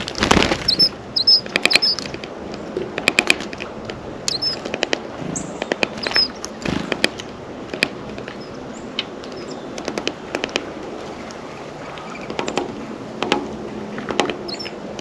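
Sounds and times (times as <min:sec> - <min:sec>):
beaks pecking and cracking seed: 0:00.0 - 0:03.7, 0:04.3 - 0:08.4
faint high bird chirps: 0:00.7 - 0:02.1, 0:04.3 - 0:04.6, 0:05.4 - 0:06.4, 0:14.5 - 0:14.8.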